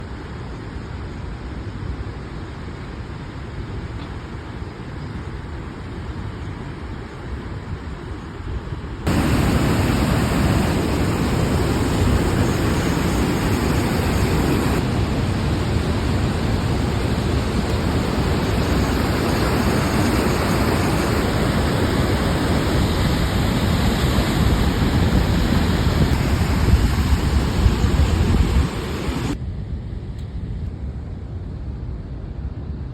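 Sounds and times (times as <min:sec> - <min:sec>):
water rushing through a dam: 0:09.1 - 0:29.4.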